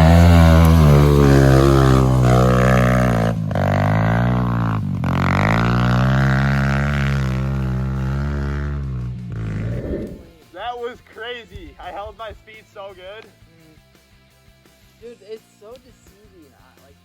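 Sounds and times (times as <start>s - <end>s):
small motorcycle engine revving: 0.0s - 10.3s.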